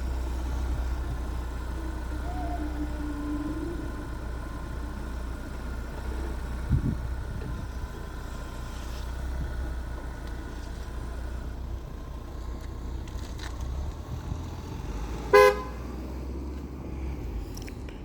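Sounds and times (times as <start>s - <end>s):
car engine idling: 0.0s - 18.0s
car horn toot: 15.3s - 15.9s.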